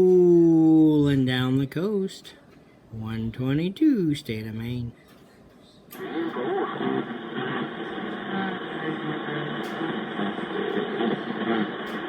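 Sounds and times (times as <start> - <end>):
faint garbled radio voice: 6.0 - 12.0
radio static: 6.0 - 12.0.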